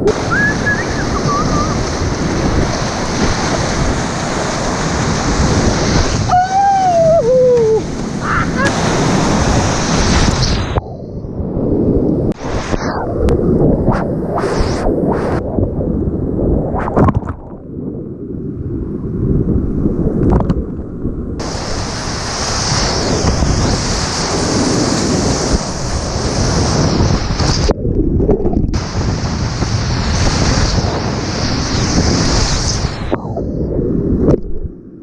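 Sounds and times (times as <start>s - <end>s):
wind buffeting microphone: 0.0s - 35.0s
rushing whitewater: 0.1s - 10.3s, 21.4s - 26.9s.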